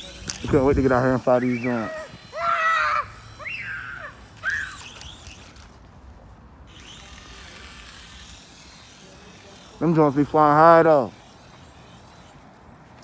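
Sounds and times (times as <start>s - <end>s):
toy helicopter motor whirring: 0.0s - 5.8s, 6.7s - 13.0s
short high-pitched calls: 1.4s - 5.2s.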